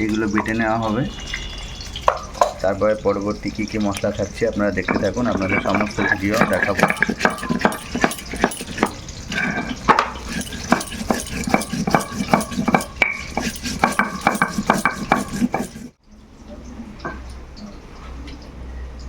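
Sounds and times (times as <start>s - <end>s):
stone grinding spices on stone: 4.8s - 16.0s.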